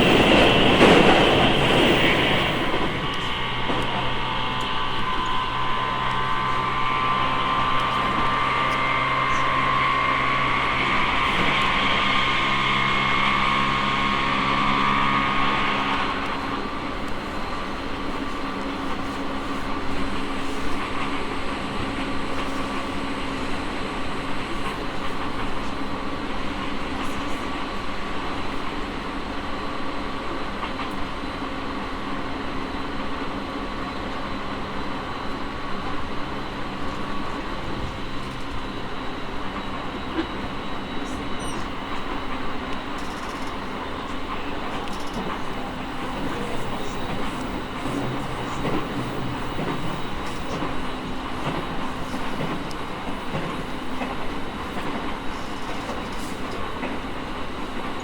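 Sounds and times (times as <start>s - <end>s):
train motor whine: 0.0s - 58.0s
train wheels rumbling on track: 0.0s - 58.0s.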